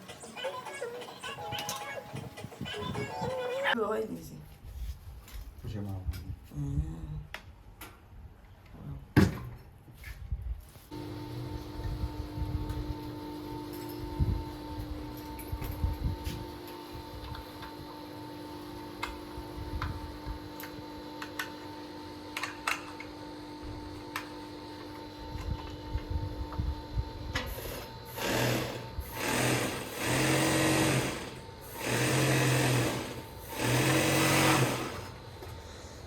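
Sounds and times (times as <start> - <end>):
sewing machine running: 27.5 - 35.2.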